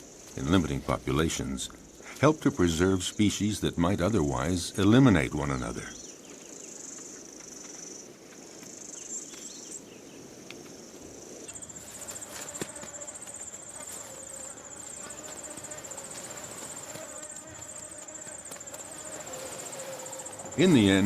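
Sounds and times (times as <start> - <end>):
crickets trilling: 0.0 - 21.0
pulsing insect chorus: 0.0 - 21.0.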